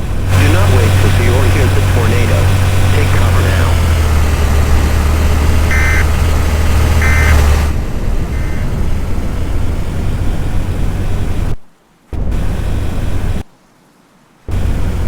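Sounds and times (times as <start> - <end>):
low drone: 0.0 - 11.6
vehicle rushing noise: 0.0 - 13.4
short beeps: 5.7 - 6.1, 7.0 - 7.4.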